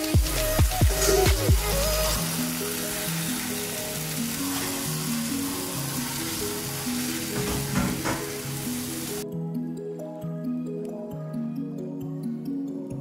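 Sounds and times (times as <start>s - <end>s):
food sizzling in a pan: 0.0s - 9.2s
background music: 0.0s - 13.0s.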